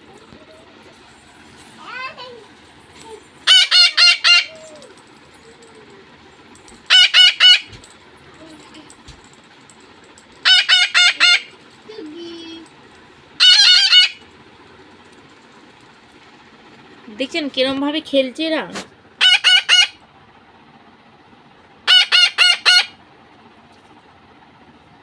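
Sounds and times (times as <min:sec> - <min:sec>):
parrots screeching: 0:03.4 - 0:05.0, 0:06.9 - 0:07.8, 0:10.4 - 0:11.6, 0:13.4 - 0:14.3, 0:19.2 - 0:20.0, 0:21.8 - 0:23.0.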